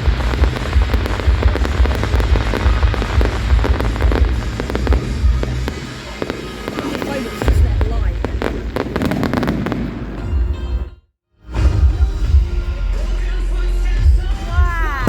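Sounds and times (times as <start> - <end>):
show music with heavy bass: 0.0 - 7.6, 11.4 - 15.0
fireworks cracking and banging: 0.0 - 10.6.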